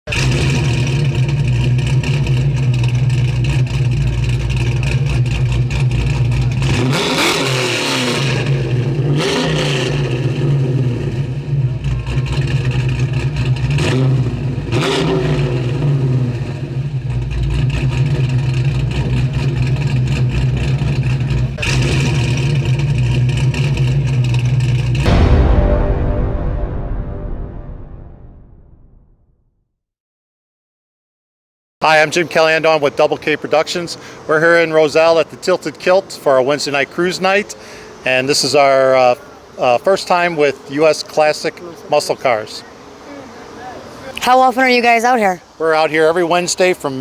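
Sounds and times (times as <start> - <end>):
car engine idling: 0.1 - 7.0, 10.1 - 14.8, 15.5 - 25.0, 31.9 - 40.7
engine revving: 0.1 - 25.4.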